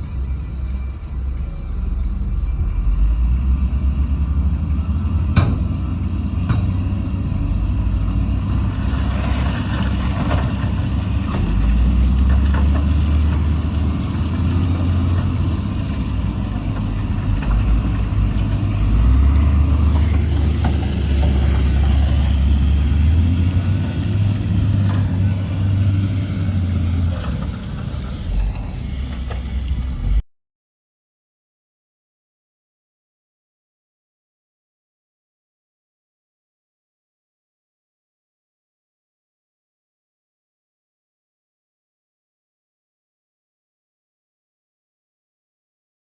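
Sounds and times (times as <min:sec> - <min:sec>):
heavy diesel engine running: 0:00.0 - 0:30.2.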